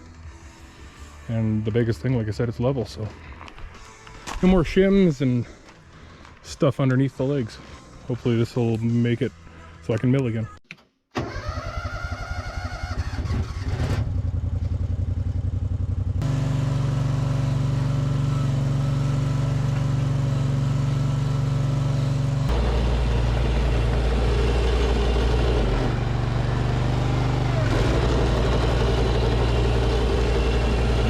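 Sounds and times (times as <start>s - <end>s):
excavator engine under load: 16.2s - 31.0s.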